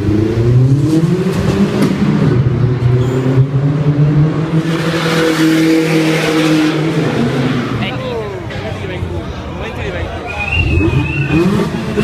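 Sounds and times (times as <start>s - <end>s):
car engine accelerating: 0.0s - 7.9s, 10.5s - 12.0s.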